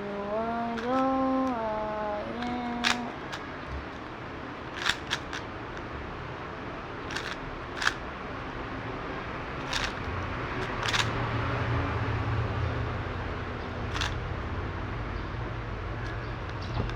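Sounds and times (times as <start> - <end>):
speed cube clicking: 0.7 - 6.0, 7.0 - 8.1, 9.6 - 11.2, 13.8 - 14.3, 16.0 - 16.9.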